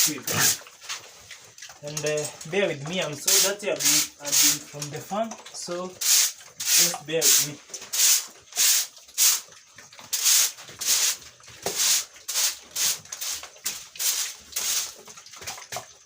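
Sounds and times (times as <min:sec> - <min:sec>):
broom sweeping a dry floor: 0:06.0 - 0:09.4, 0:10.2 - 0:13.4, 0:14.0 - 0:14.9.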